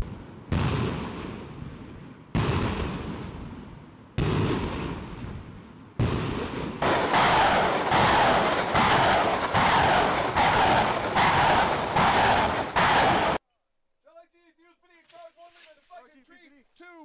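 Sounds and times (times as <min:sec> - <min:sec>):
rocket launch blasts: 0:06.0 - 0:13.4
dense noise: 0:06.8 - 0:13.4.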